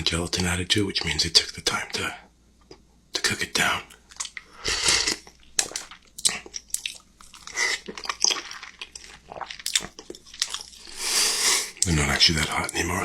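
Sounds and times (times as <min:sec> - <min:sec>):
chewing and wet mouth sounds: 0:03.9 - 0:12.0.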